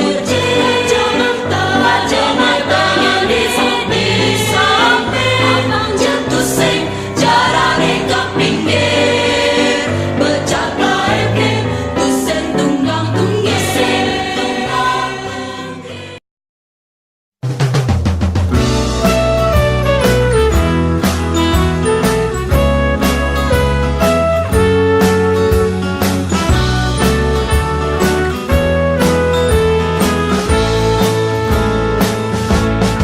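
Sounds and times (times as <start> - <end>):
choir singing with music: 0.0 - 16.2.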